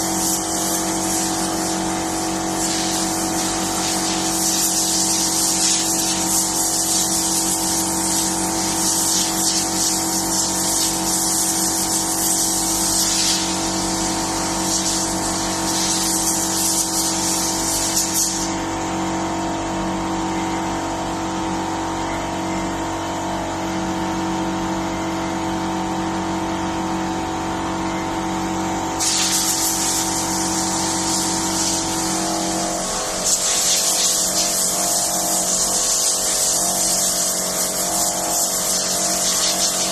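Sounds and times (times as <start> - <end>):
loud hiss: 2.4 - 15.1, 15.7 - 18.5, 29.0 - 39.9.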